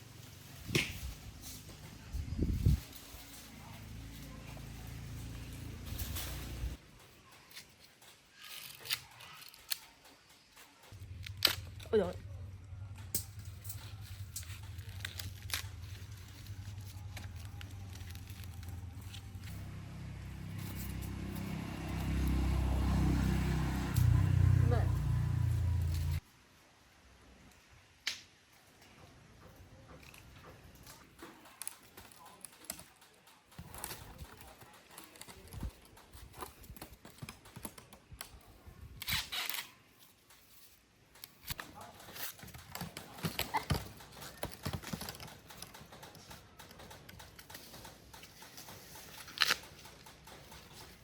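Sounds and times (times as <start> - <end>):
rustling: 0.1 - 12.1, 13.0 - 23.4.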